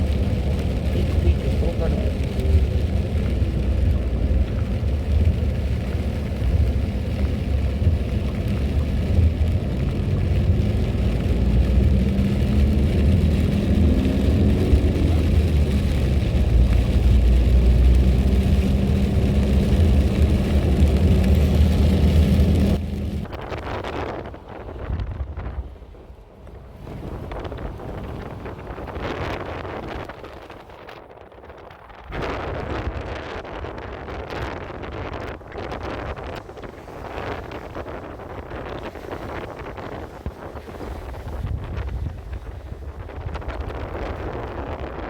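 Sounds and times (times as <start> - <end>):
car engine rumbling: 0.0 - 45.0
road noise: 0.0 - 45.0.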